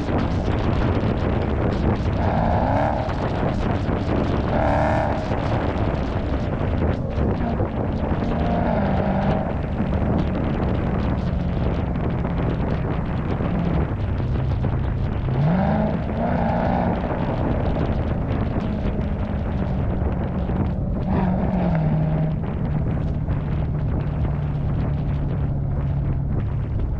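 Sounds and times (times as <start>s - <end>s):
car engine idling and revving: 0.0s - 26.9s.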